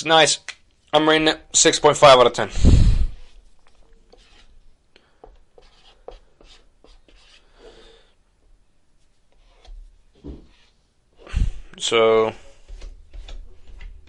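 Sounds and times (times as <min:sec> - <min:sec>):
faint scratching and taps: 0:03.3 - 0:07.4, 0:08.4 - 0:10.8, 0:12.4 - 0:14.0.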